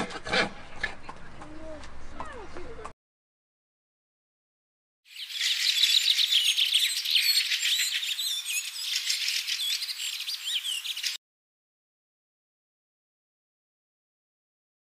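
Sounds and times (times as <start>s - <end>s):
small birds chirping: 5.1s - 11.2s.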